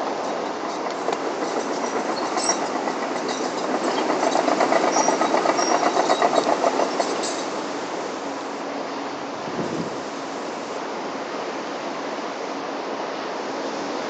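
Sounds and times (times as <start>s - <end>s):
fast mechanical clattering: 0.1s - 7.9s.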